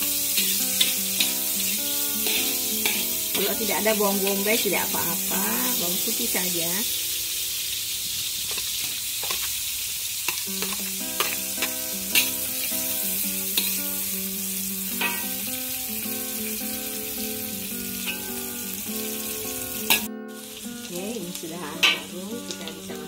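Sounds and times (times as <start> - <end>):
soft background music: 0.0 - 7.9, 10.5 - 23.0
garlic and onion sizzling in oil: 0.0 - 23.0
metal spatula scraping a wok: 0.2 - 4.4, 10.3 - 13.8, 15.0 - 15.3.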